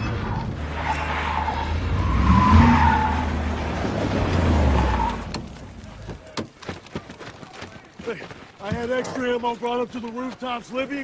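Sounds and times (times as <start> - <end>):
car tyres squealing: 0.0 - 6.8.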